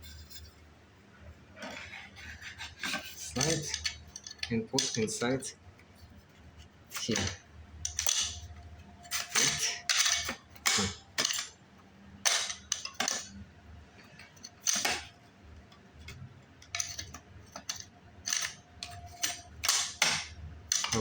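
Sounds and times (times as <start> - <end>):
light fixture parts clicking: 2.9 - 5.2, 6.9 - 11.6, 12.2 - 13.4, 14.2 - 21.0.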